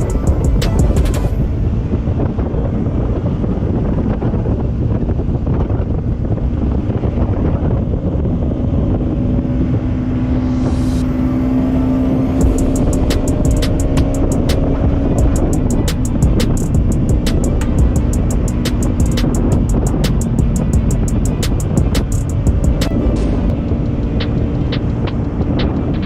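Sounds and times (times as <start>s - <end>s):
wind rumble on microphone: 0.0s - 26.0s
motorcycle engine running: 11.2s - 26.0s.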